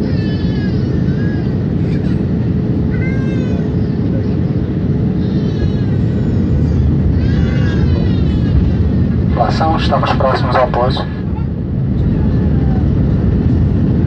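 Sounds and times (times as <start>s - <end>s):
airplane cabin rumble: 0.0s - 14.0s
high-pitched vocal cries: 5.2s - 9.0s.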